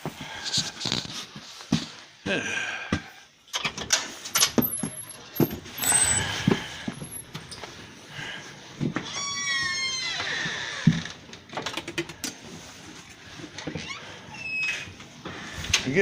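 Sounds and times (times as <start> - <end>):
door squeaks: 4.6 - 7.6, 9.0 - 11.2, 13.8 - 15.0.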